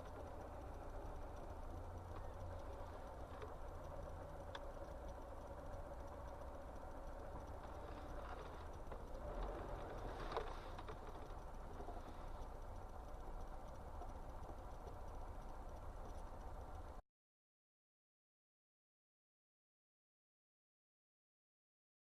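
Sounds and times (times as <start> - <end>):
faint clicks: 0.0 - 17.0
moving vehicle rumble: 0.0 - 17.0.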